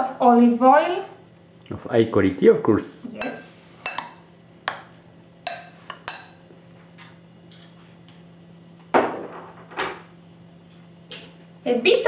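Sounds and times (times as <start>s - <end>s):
dishes clattering: 3.2s - 6.4s
glass and crockery clinking: 5.5s - 6.4s.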